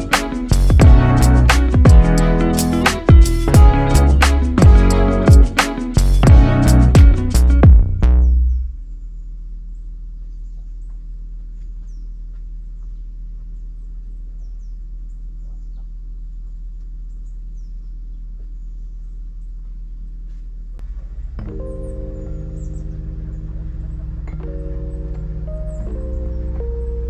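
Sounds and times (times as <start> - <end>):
steady low hum: 0.0 - 27.0
birds chirping: 8.1 - 19.7, 21.5 - 27.0.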